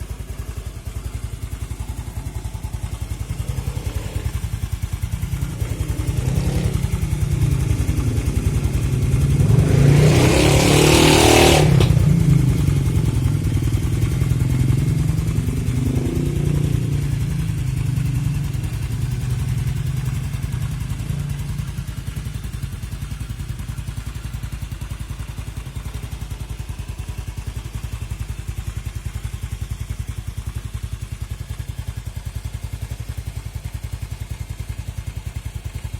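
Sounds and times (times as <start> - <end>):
low pulsing engine drone: 1.8 - 22.2.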